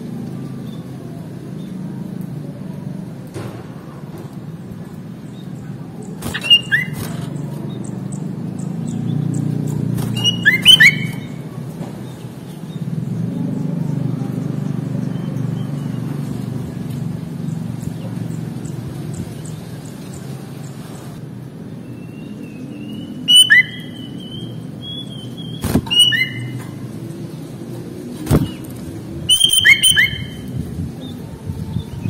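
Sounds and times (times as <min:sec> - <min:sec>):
bulbul whistled notes: 0:10.1 - 0:11.3, 0:22.9 - 0:26.5, 0:29.3 - 0:30.5.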